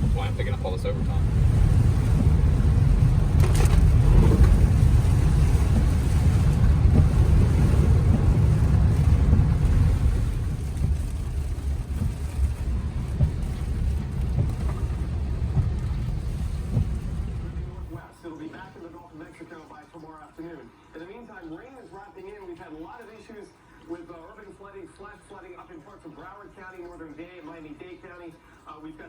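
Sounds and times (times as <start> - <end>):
tyre and wind rumble inside car: 0.0 - 18.0.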